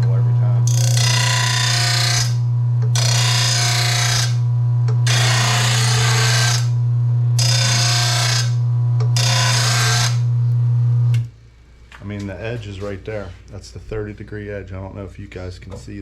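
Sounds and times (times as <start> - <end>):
sharpener motor hum: 0.6 - 11.3
blade grinding on wheel: 0.7 - 4.4, 5.1 - 6.8, 7.4 - 10.3.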